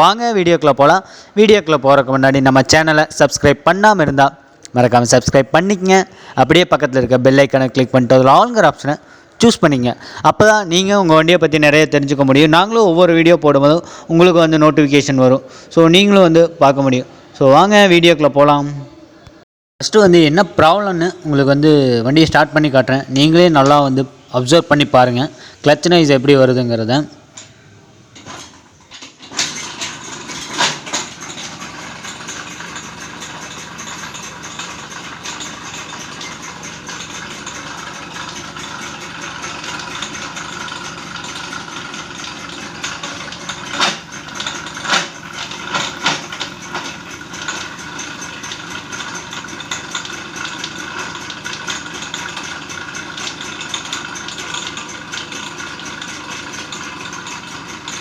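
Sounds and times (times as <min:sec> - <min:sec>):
moped engine starting and running: 0:19.9 - 0:58.0
clutch noise: 0:20.0 - 0:58.0.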